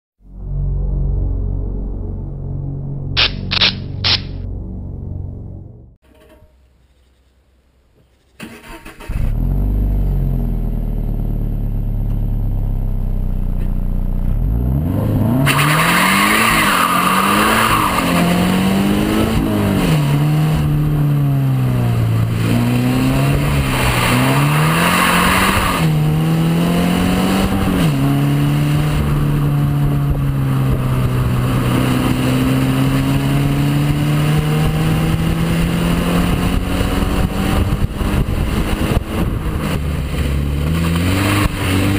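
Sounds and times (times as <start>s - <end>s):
car engine revving: 8.5s - 41.9s.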